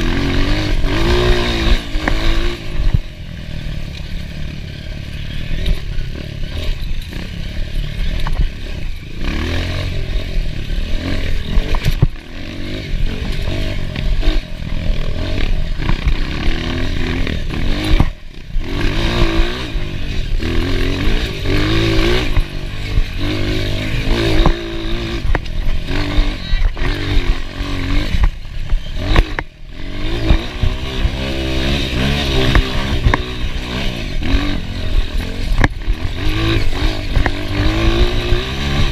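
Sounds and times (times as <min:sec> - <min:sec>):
clatter: 0:00.0 - 0:38.9
dirt bike engine revving: 0:00.0 - 0:38.9.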